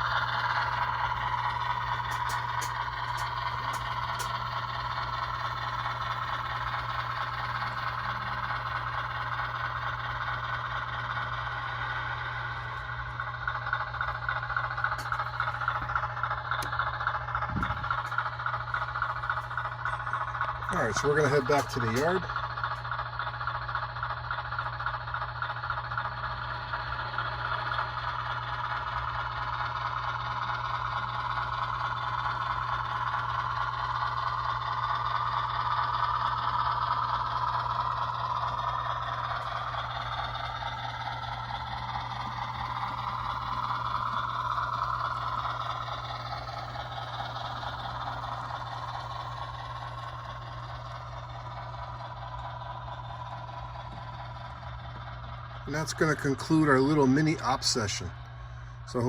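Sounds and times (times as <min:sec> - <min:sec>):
wheels clattering on rails: 0:00.0 - 0:04.6, 0:17.4 - 0:22.4
model train motor whine: 0:00.0 - 0:59.0.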